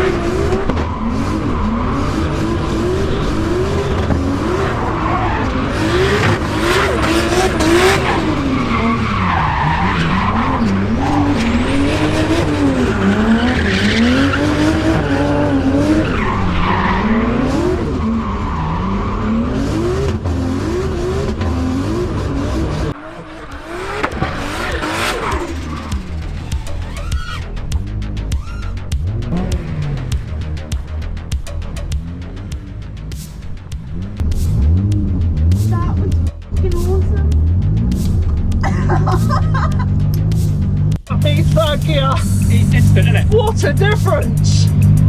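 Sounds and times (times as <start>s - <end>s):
tyres squealing and skidding: 0.0s - 30.3s
car engine revving: 0.0s - 45.0s.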